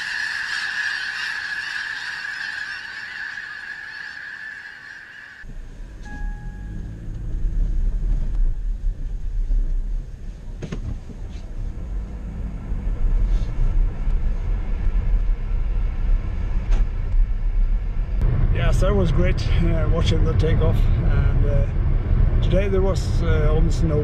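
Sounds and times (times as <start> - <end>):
car engine running: 5.5 - 23.8.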